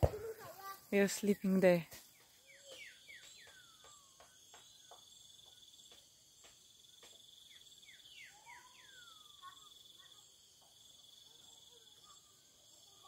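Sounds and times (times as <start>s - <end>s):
crickets chirring: 0.0s - 13.0s
bird whistling: 2.4s - 5.0s, 7.8s - 9.6s.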